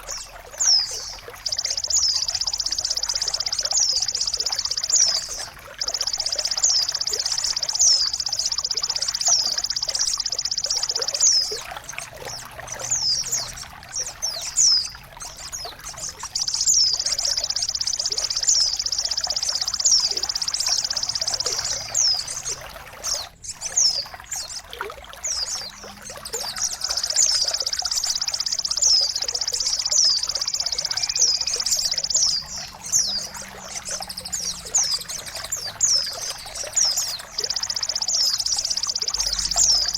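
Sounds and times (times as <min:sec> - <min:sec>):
running water trickling: 0:00.0 - 0:39.9
bird buzzing trill: 0:25.3 - 0:39.9.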